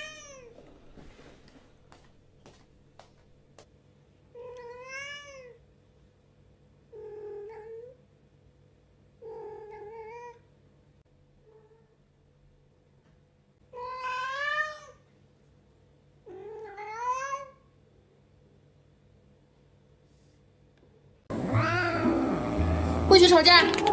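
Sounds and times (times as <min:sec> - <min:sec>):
cat meowing: 0:21.3 - 0:23.9.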